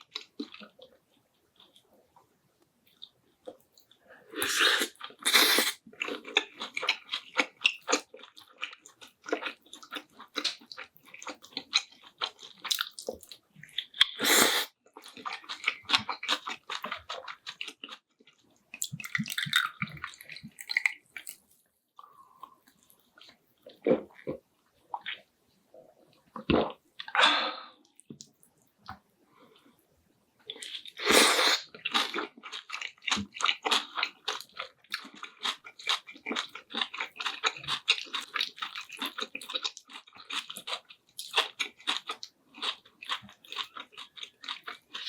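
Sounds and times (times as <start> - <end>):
wet chewing and lip-smacking: 5.9 - 14.2, 14.9 - 23.8, 31.8 - 45.0.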